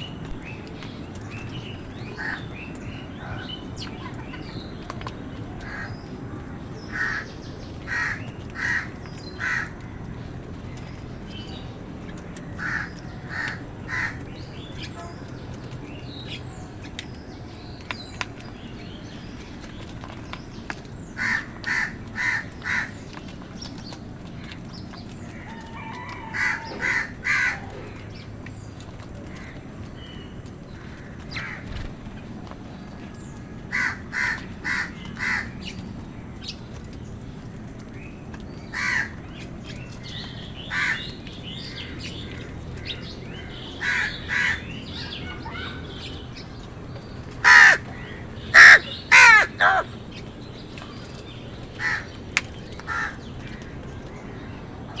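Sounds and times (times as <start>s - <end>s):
low background noise: 0.0s - 55.0s
crows cawing: 2.2s - 2.4s, 5.6s - 5.9s, 6.9s - 7.3s, 7.9s - 10.0s, 12.6s - 14.2s, 21.2s - 23.0s, 25.3s - 28.1s, 30.7s - 31.6s, 33.7s - 35.6s, 38.7s - 39.2s, 40.7s - 41.9s, 43.5s - 44.7s, 47.4s - 50.0s, 51.8s - 52.2s, 52.8s - 53.7s.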